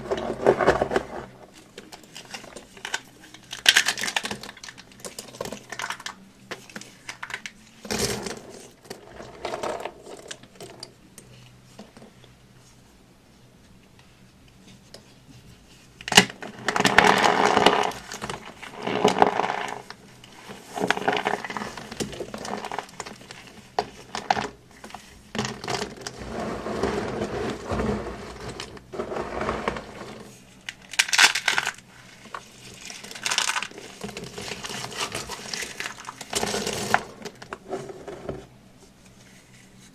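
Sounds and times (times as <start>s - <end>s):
brittle material crunching: 25.4s - 37.5s.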